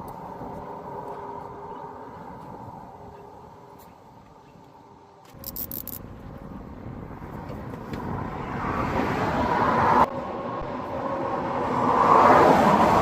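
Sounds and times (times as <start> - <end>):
motor vehicle noise: 0.0 - 13.0.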